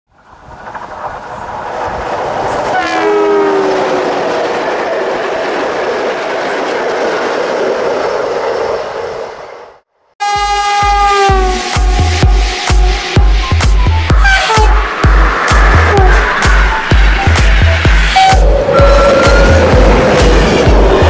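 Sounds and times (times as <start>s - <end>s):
train roaring past: 0.1s - 21.0s
two-tone train horn: 2.7s - 3.8s, 10.2s - 14.8s, 15.9s - 16.2s, 17.9s - 19.7s
music with steady beat: 10.4s - 21.0s.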